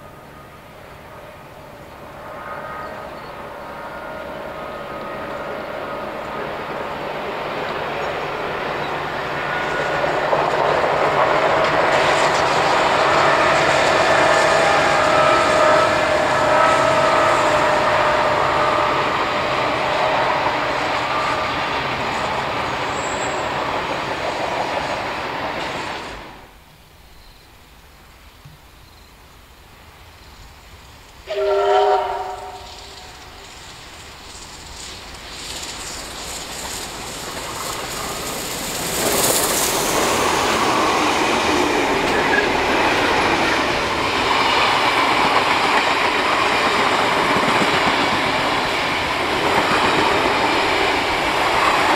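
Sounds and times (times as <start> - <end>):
train wheels rolling on rail: 0.0 - 27.5, 28.4 - 51.9
train whistle blast: 2.2 - 6.1, 11.3 - 21.7, 31.2 - 33.5.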